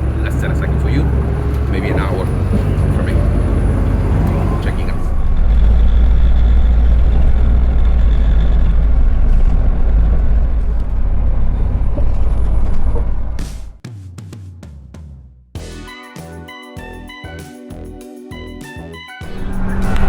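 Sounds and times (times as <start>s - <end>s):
bus engine rumble: 0.0s - 13.8s.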